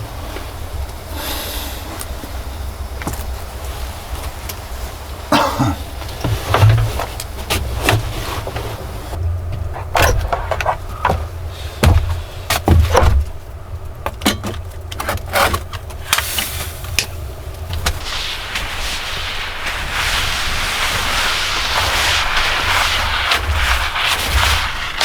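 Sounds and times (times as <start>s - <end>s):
steady low rumble: 0.0s - 14.9s
irregular knocks and clicks: 6.0s - 13.4s.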